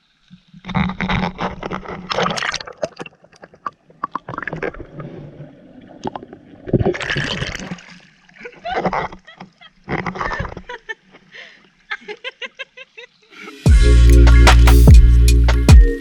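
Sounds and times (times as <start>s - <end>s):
water splashing in pool: 0.4s - 10.7s.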